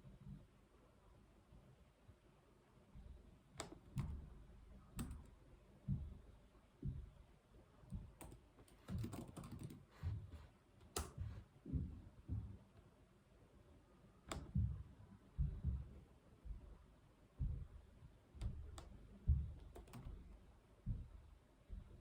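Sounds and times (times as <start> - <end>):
typing on computer keyboard: 5.0 - 5.3, 8.1 - 9.9, 19.6 - 20.2.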